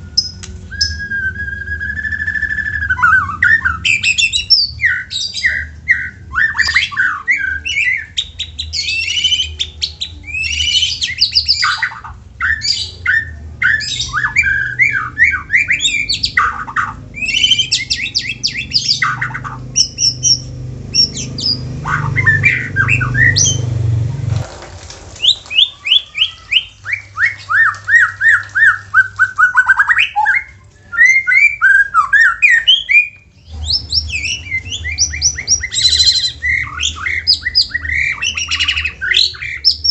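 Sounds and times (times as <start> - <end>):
low hum: 0.0 - 11.2, 12.0 - 24.9
bird singing loudly: 0.0 - 24.0, 25.2 - 39.9.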